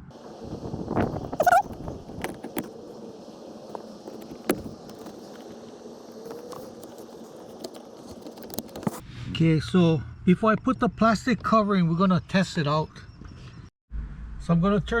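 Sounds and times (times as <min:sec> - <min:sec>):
steady faint hiss: 0:00.1 - 0:08.9.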